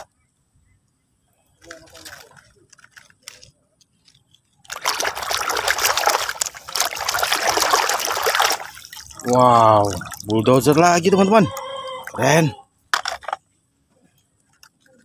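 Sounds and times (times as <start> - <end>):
water sloshing and splashing: 4.6 - 12.4.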